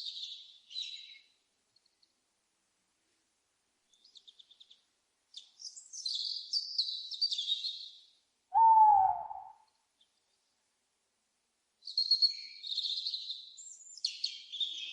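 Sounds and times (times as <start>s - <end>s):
small songbird singing: 0.0s - 2.0s, 3.9s - 10.6s, 11.8s - 14.9s.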